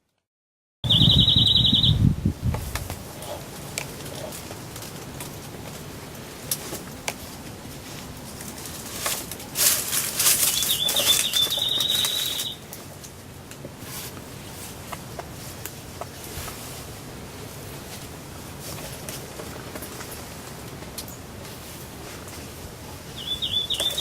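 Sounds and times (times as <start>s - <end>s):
turkey wings flapping: 8.3s - 12.6s.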